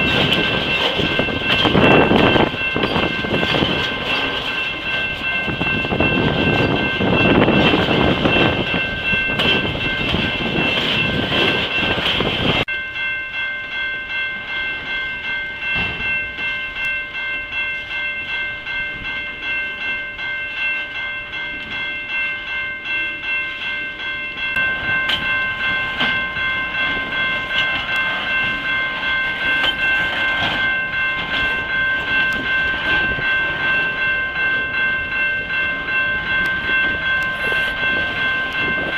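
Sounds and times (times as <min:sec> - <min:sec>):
wheels clacking over rail joints: 0:00.0 - 0:12.7, 0:24.4 - 0:38.9
high ringing tone: 0:00.0 - 0:38.9
railcars rumbling past: 0:00.0 - 0:38.9.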